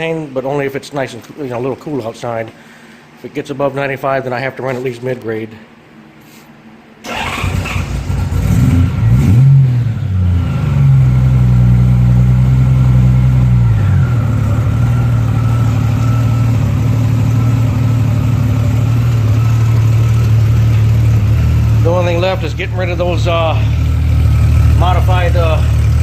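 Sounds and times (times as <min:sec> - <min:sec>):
motorcycle engine revving and idling: 0:07.5 - 0:26.0.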